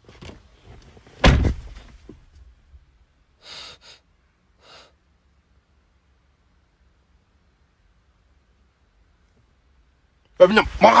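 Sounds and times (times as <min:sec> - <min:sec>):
door slamming shut: 0:01.2 - 0:01.8
short breathy sounds: 0:03.4 - 0:05.0.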